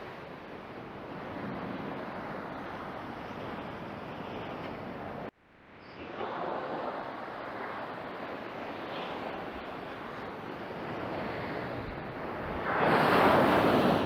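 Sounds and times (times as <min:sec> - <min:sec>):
surf washing onto beach: 0:06.1 - 0:14.0.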